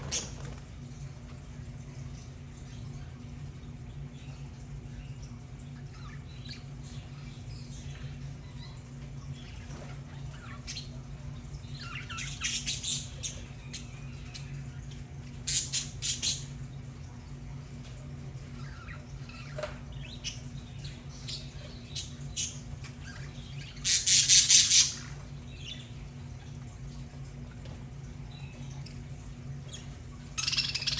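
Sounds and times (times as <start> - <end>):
budgerigars chattering and squawking: 0.0 - 0.7, 5.7 - 16.7, 18.4 - 30.9
steady low hum: 0.0 - 30.9.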